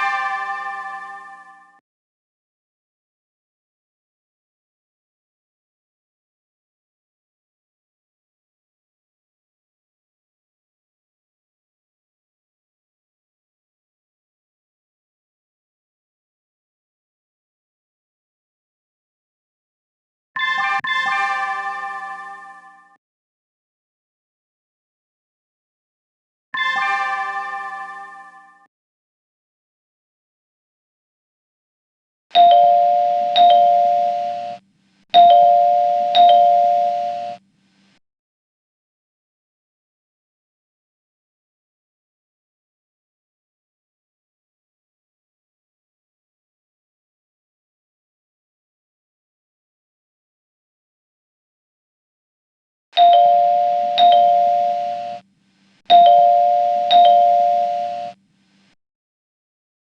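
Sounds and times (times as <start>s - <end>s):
two-note ding-dong chime: 32.4s - 34.6s, 35.2s - 37.4s, 53.0s - 55.2s, 55.9s - 58.2s.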